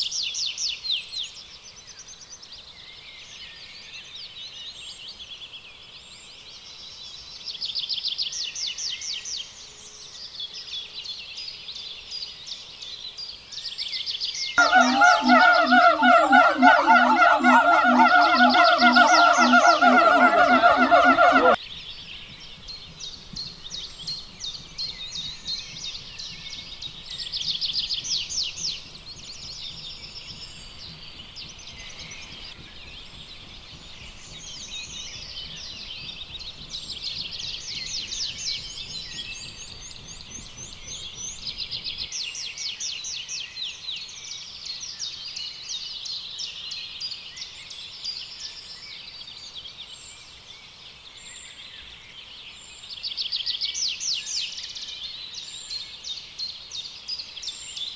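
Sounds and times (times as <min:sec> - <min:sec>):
birds singing in chorus: 0:14.6 - 0:21.6.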